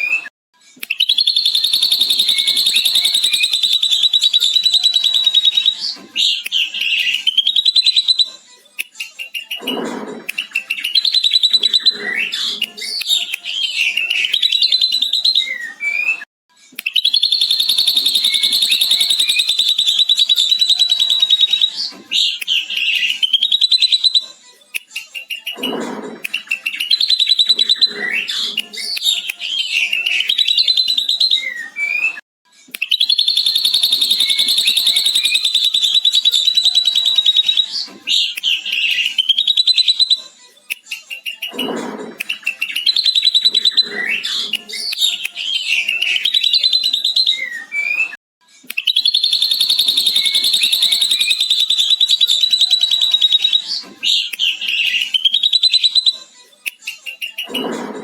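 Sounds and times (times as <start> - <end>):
bird chattering trills and chirps: 1.0 - 8.3, 17.0 - 21.7, 32.9 - 40.2, 48.8 - 56.1.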